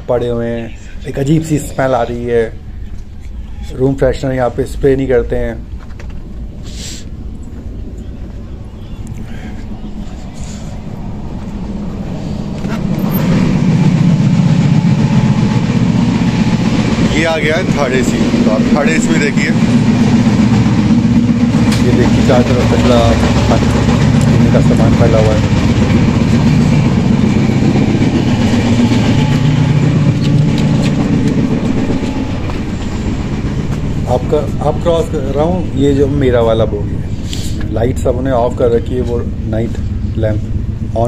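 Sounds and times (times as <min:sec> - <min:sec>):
train running rumble: 0:01.2 - 0:41.0.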